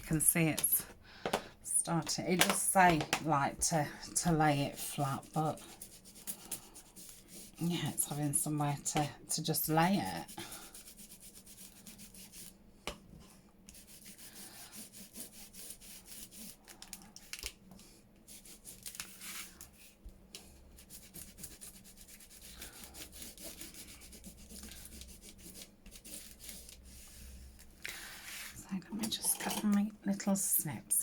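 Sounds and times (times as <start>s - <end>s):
paper rubbing and scratching: 4.3s - 12.5s, 13.7s - 16.6s, 18.3s - 20.0s, 20.8s - 28.6s.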